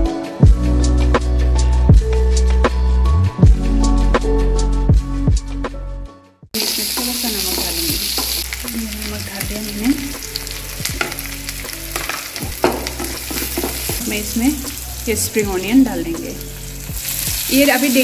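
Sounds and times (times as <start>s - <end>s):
background music: 0.0s - 18.0s
vegetables sizzling in hot oil: 6.6s - 18.0s.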